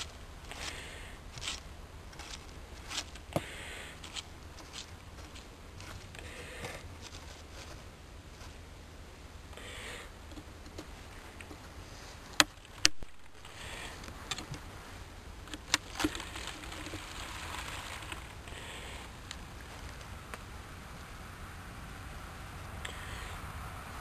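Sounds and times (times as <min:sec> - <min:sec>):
soft rustling and scraping: 0:00.0 - 0:08.8, 0:10.3 - 0:20.4.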